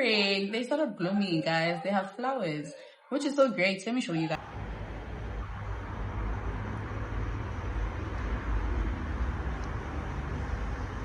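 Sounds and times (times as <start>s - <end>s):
steady low rumble with hiss: 4.4s - 11.0s.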